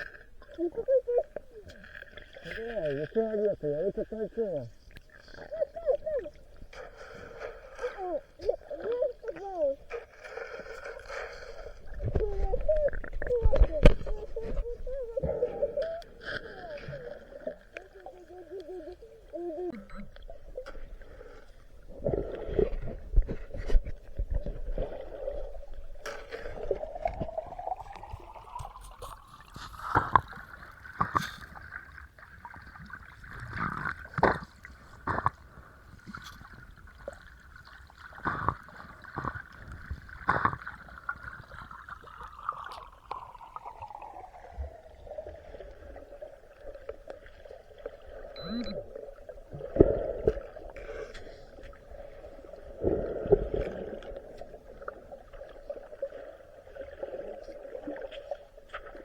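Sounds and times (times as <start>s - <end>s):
steady underwater tone: 0.0s - 59.0s
bubbling water: 7.9s - 35.6s, 36.4s - 50.9s.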